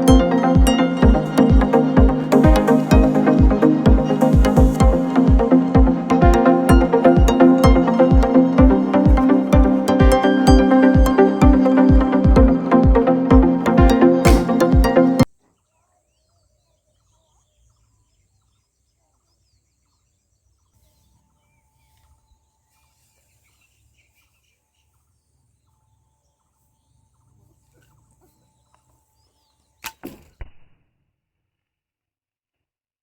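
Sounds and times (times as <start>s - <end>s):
crossbow firing cracks: 29.8s - 30.9s.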